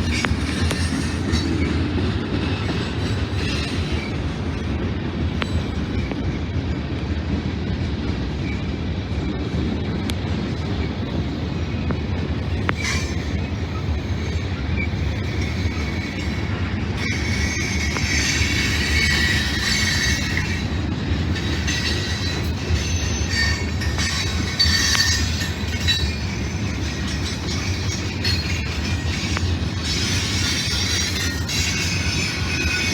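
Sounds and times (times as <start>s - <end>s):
high-pitched wheel squeal: 0.0s - 6.8s, 8.3s - 32.9s
train wheels rumbling on rail: 0.0s - 32.9s.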